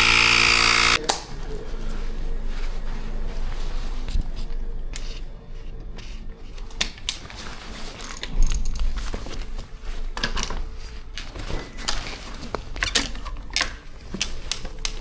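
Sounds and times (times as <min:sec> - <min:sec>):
metal parts clicking and clinking: 0:06.8 - 0:09.0, 0:10.2 - 0:15.0.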